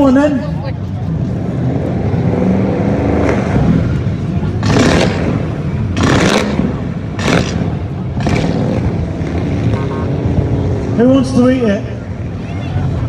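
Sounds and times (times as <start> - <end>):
car engine revving: 0.0 - 12.4.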